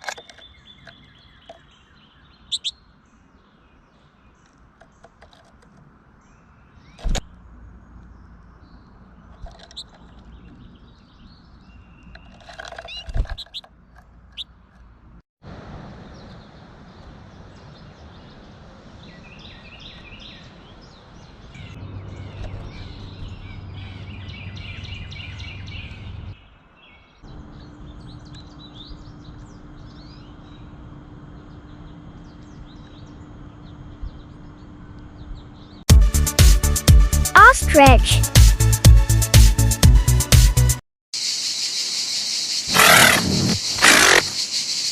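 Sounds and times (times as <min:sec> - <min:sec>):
songbirds chirping: 0:00.0 - 0:15.2, 0:16.0 - 0:35.8, 0:41.2 - 0:44.9
outdoor background noise: 0:00.0 - 0:35.9, 0:41.2 - 0:44.9.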